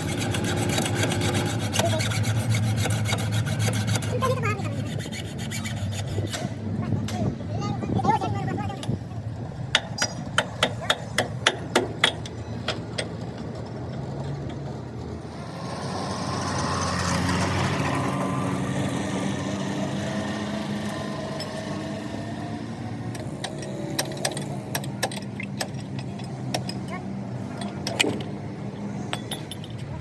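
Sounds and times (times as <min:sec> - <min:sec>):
sharp metallic taps: 0:09.7 - 0:13.1
engine humming: 0:11.4 - 0:30.0.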